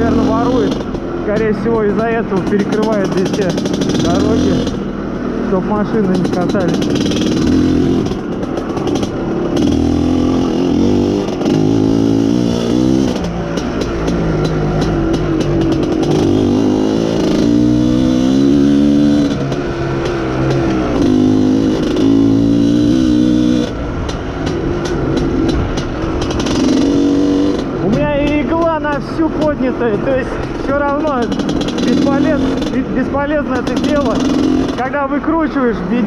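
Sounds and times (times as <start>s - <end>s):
person speaking: 0.0s - 4.7s, 5.4s - 7.0s, 27.8s - 36.0s
two-stroke motorcycle engine revving: 0.0s - 36.0s.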